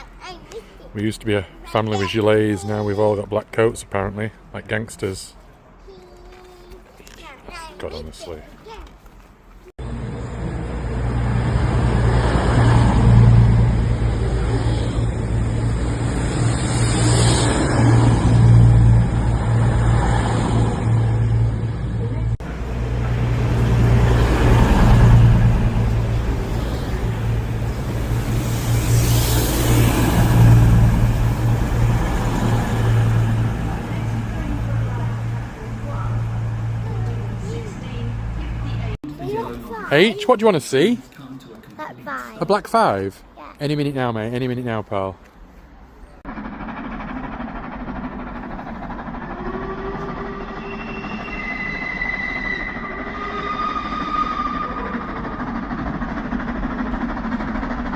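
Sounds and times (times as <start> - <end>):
rushing noise: 9.8 - 39.0, 46.3 - 57.9
train engine drone: 9.8 - 39.8, 45.2 - 57.9.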